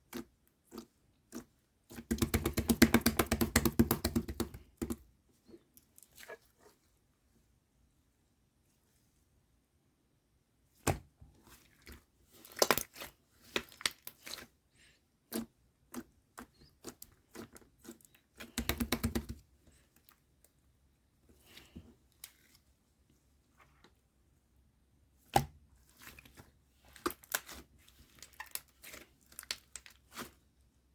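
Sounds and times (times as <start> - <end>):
slime with beads squished by hand: 12.3 - 14.5.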